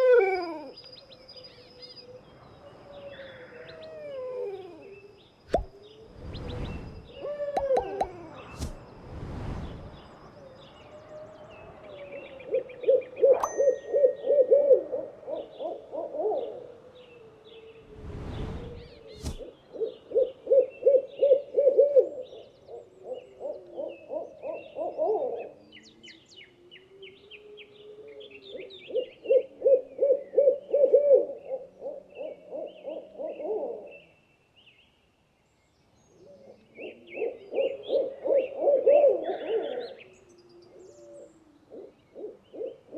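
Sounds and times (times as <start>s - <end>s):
small birds chirping: 0.5s - 20.9s
owl hooting: 7.1s - 8.8s, 12.4s - 16.8s, 26.7s - 34.0s, 36.8s - 42.9s.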